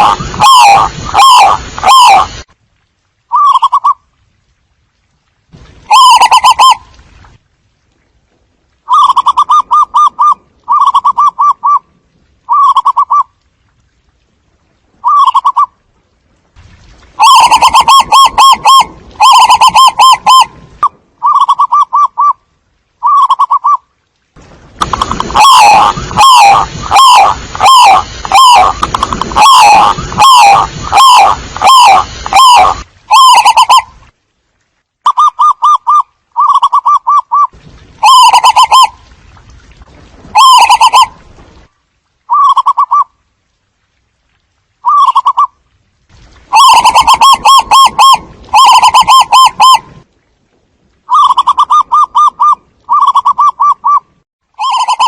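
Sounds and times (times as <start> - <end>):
doves cooing: 46.5 - 49.8.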